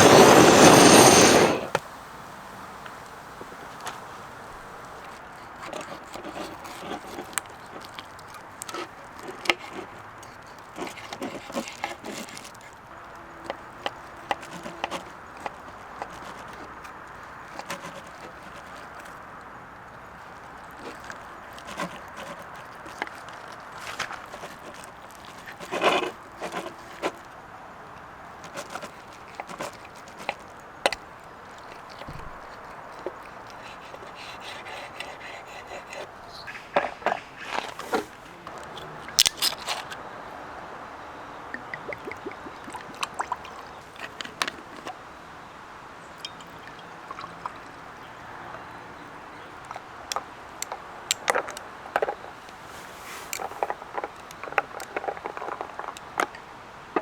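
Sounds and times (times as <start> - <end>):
fire crackling pops: 0.0 - 5.1
steak grilling hiss: 0.0 - 5.1.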